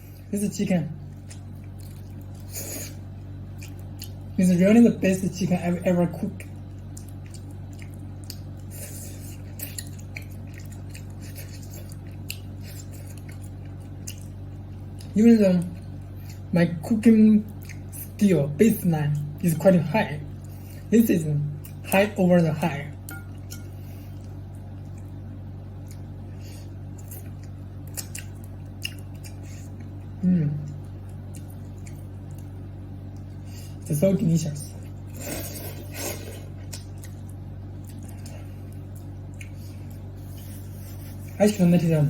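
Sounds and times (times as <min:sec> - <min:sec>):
steady low hum: 0:00.0 - 0:42.0
person eating and chewing: 0:01.0 - 0:04.4, 0:06.4 - 0:16.5, 0:17.4 - 0:18.2, 0:22.7 - 0:33.9, 0:34.7 - 0:41.9.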